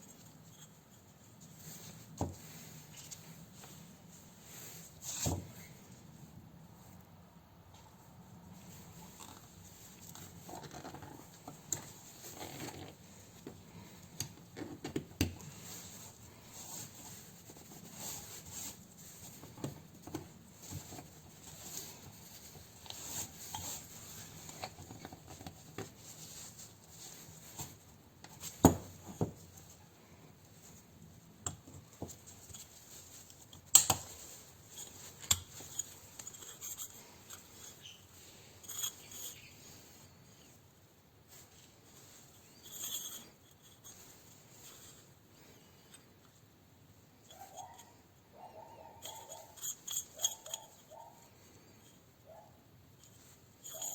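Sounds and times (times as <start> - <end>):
metal tools clinking: 49.0 - 50.8.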